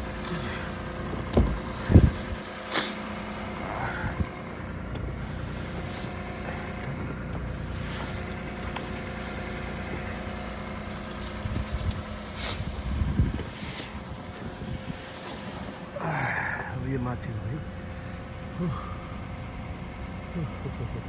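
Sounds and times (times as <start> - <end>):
knocks and scrapes: 0.0 - 4.3, 4.9 - 16.0
car engine idling: 0.0 - 21.0.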